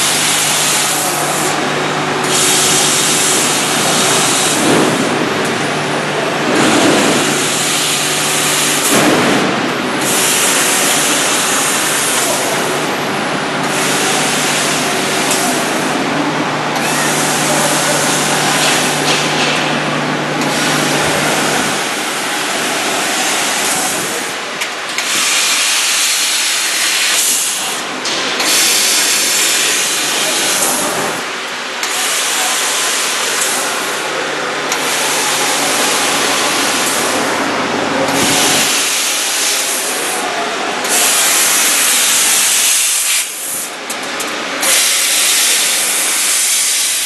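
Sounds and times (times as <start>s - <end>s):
machine hum: 0.0s - 47.0s
hiss of laser cutter gas: 25.1s - 27.8s, 38.2s - 40.2s, 40.9s - 43.7s, 44.6s - 47.0s.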